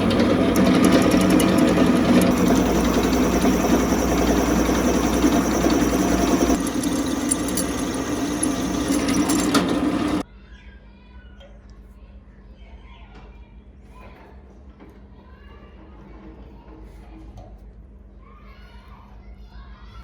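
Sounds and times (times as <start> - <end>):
electric power tool grinding: 0.0 - 10.2.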